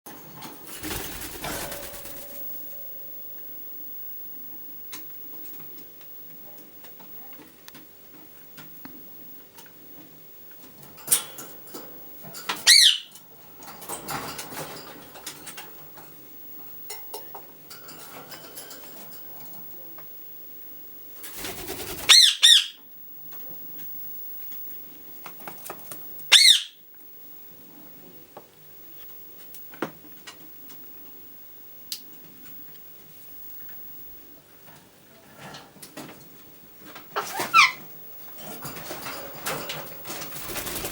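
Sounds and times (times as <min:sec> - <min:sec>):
parakeets squawking: 0:12.7 - 0:13.1, 0:21.4 - 0:22.8, 0:26.3 - 0:26.8.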